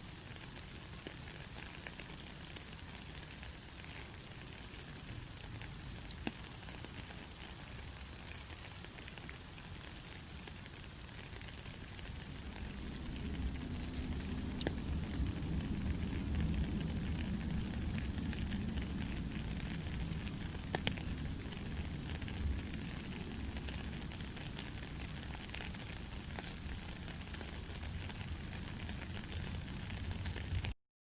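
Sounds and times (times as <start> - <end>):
steady white noise hiss: 0.0 - 30.7
low rumble: 12.2 - 22.6
faint ticks: 20.6 - 22.5.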